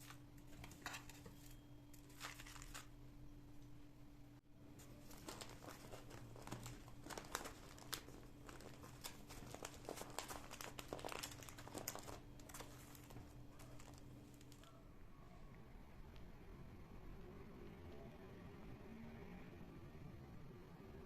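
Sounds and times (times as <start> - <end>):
packaging crinkling: 0.0 - 2.9, 4.8 - 14.7
small clicks and crackles: 0.0 - 2.9, 4.8 - 14.8
steady low hum: 0.0 - 21.0.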